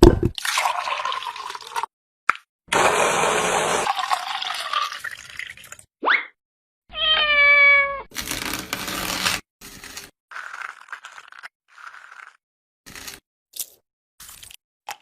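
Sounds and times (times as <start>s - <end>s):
cat meowing: 6.9s - 8.1s.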